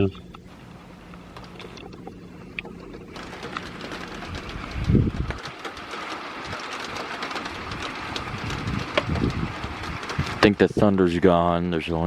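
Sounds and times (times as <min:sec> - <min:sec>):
steady outdoor rumble: 0:00.0 - 0:12.0
wind on microphone: 0:04.2 - 0:05.6, 0:07.6 - 0:11.0.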